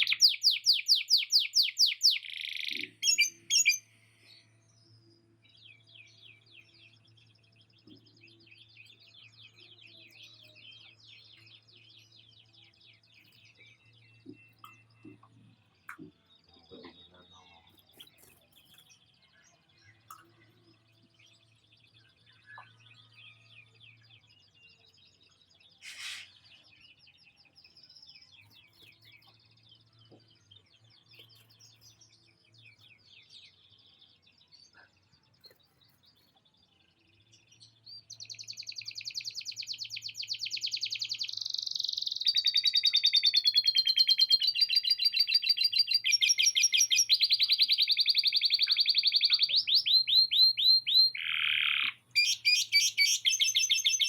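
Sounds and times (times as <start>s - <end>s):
canary singing trills: 0.0s - 4.6s, 35.1s - 54.0s.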